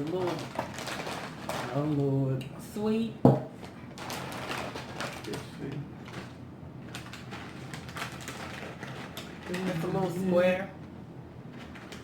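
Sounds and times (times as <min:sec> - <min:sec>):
snack package rustling: 0:00.0 - 0:02.2, 0:04.0 - 0:10.2.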